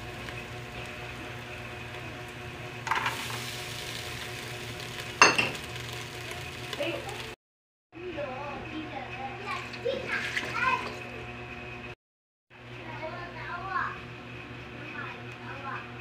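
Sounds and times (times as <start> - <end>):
shallots and garlic sizzling: 0.0 - 7.4, 8.1 - 11.2.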